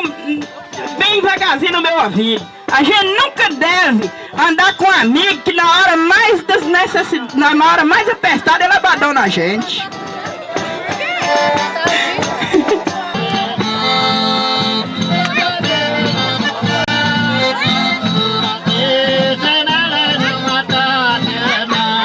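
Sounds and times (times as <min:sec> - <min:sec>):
button accordion folk music: 0:00.0 - 0:22.0.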